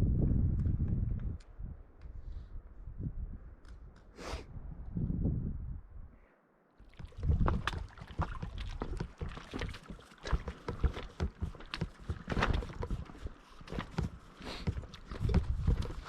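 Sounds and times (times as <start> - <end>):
footsteps on a trail: 7.0 - 16.0.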